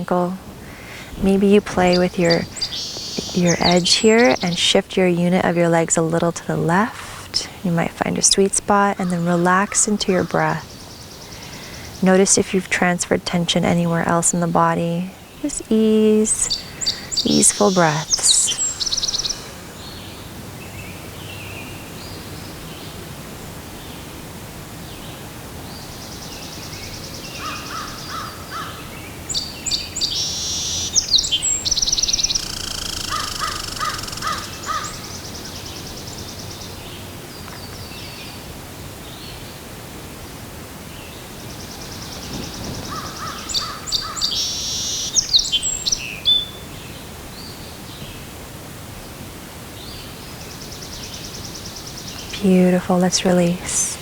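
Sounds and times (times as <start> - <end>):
birds singing trilled notes: 0.0 - 23.0, 25.7 - 38.4, 41.0 - 48.1
steady background hiss: 0.0 - 54.0.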